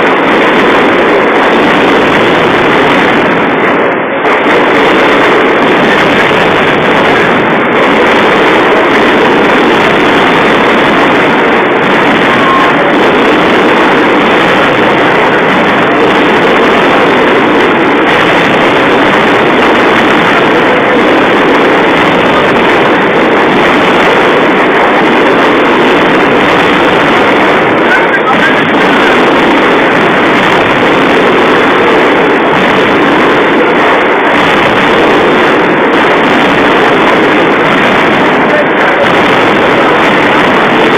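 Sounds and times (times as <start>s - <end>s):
firecrackers crackling: 0.0s - 40.9s.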